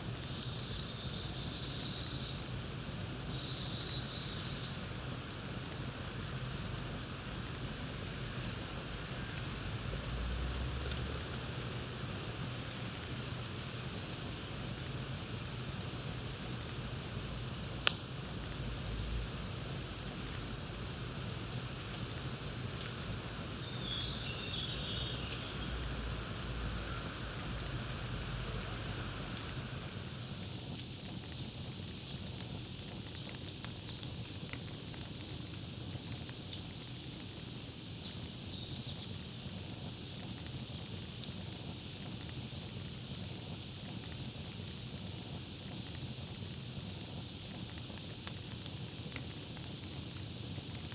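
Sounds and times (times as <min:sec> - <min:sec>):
campfire crackling: 0:00.0 - 0:50.9
faint bird chirps: 0:00.4 - 0:02.4, 0:03.3 - 0:04.8, 0:23.6 - 0:25.8
loud pop of burning wood: 0:16.5 - 0:19.2.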